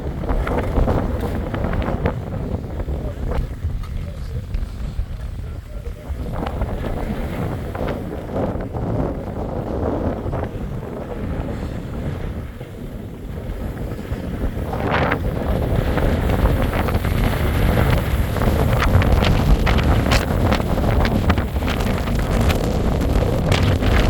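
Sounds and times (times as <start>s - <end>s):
wind buffeting microphone: 0.0s - 24.0s
crackles: 16.1s - 24.0s.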